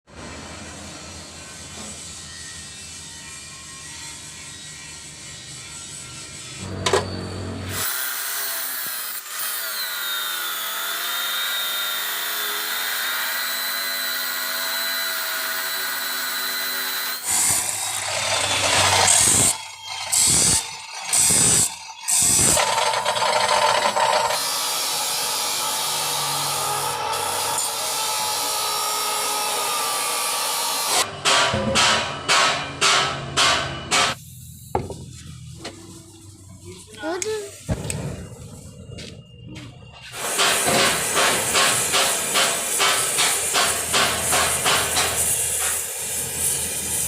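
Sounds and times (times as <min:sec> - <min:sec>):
electric power tool on metal: 0:01.0 - 0:31.1, 0:40.1 - 0:47.0.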